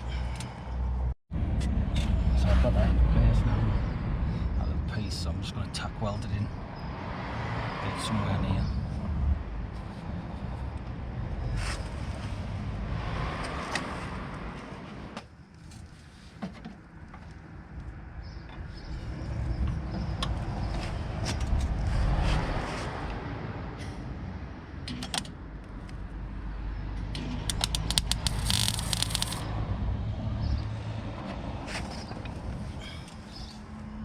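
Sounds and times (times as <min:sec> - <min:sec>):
knocks and clicks: 0:27.0 - 0:29.4
welder crackling bursts: 0:27.5 - 0:29.4.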